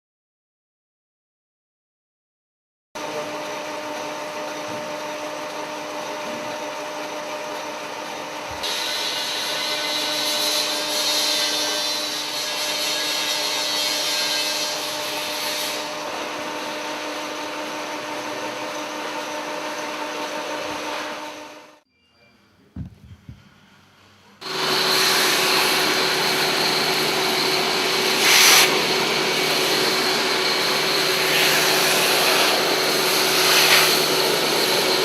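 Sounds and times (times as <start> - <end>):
industrial vacuum motor hum: 3.0 - 21.8, 24.4 - 35.0
hissing rush of air: 24.4 - 35.0.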